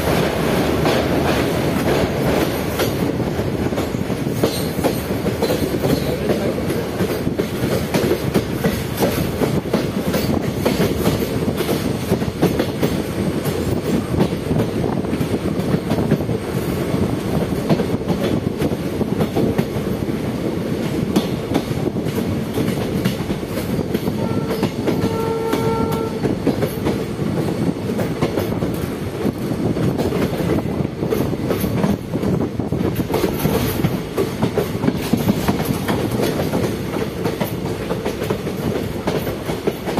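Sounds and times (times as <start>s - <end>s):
train rumbling on rails: 0.0s - 39.9s
wheels clickety-clack over rail joints: 0.0s - 39.9s
train horn blast: 24.2s - 26.4s.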